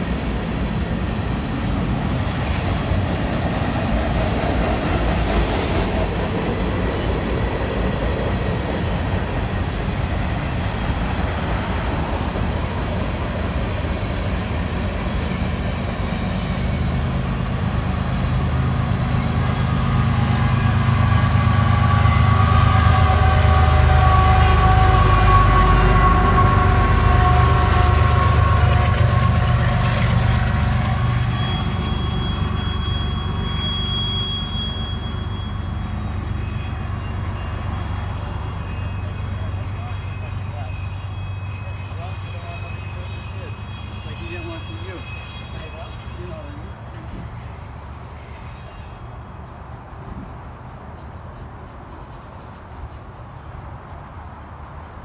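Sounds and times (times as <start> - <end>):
train rumbling on rails: 0.0 - 55.0
steady high tones: 29.2 - 47.2.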